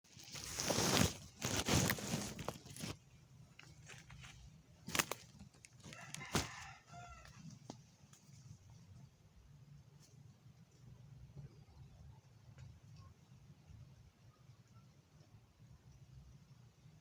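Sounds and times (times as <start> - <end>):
rooster crowing: 5.9 - 7.5.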